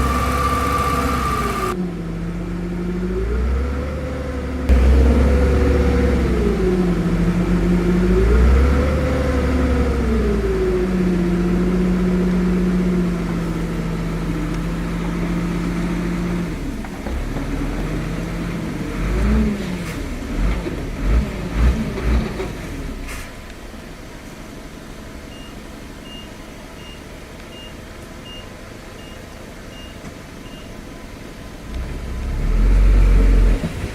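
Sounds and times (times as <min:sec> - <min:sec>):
heavy machinery diesel engine revving: 0:00.0 - 0:23.2, 0:31.7 - 0:33.9.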